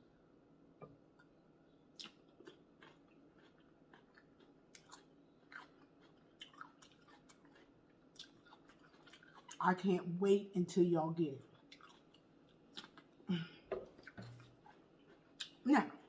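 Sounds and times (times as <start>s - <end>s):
person chewing food: 1.1s - 9.6s, 11.4s - 15.6s.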